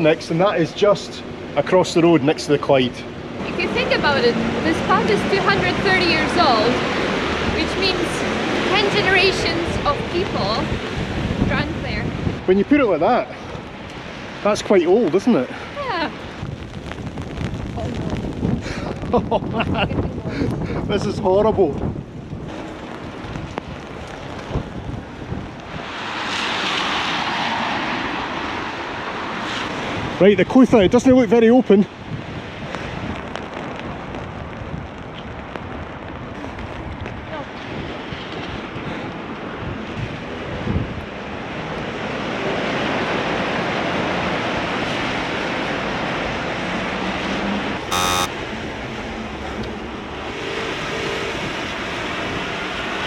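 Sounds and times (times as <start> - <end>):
heavy rain: 0.0 - 30.2
traffic on wet streets: 0.0 - 53.0
wind gusting on microphone: 3.0 - 47.0
short loud beep: 47.9 - 48.3.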